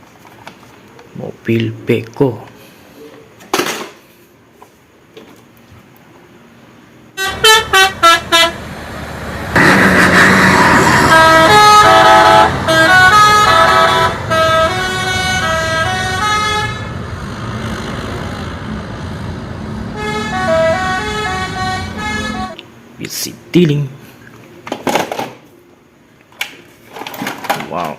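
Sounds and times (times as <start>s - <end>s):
toy horn toots: 7.2s - 8.6s, 9.6s - 16.8s, 20.0s - 22.6s
electronic engine noise: 7.2s - 22.6s.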